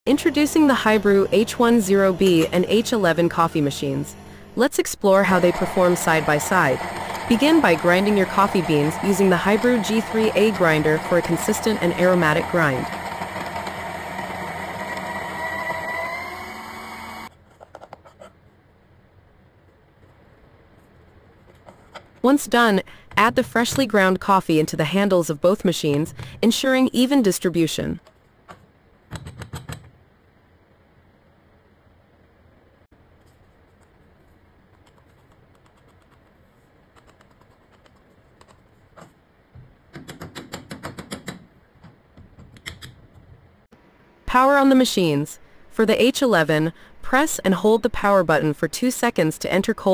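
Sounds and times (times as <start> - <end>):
coffee grinder motor whining: 0.4 - 4.6, 5.3 - 17.3.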